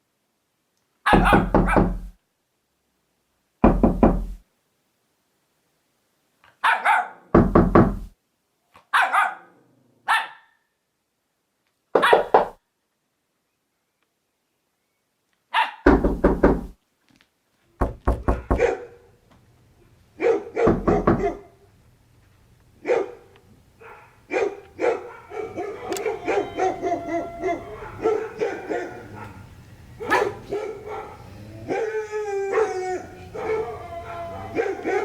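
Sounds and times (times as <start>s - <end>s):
dog barking: 1.0s - 2.0s, 6.5s - 7.3s, 8.8s - 10.7s, 12.0s - 12.4s, 15.5s - 15.9s, 18.4s - 19.1s, 20.2s - 21.6s, 22.8s - 35.0s.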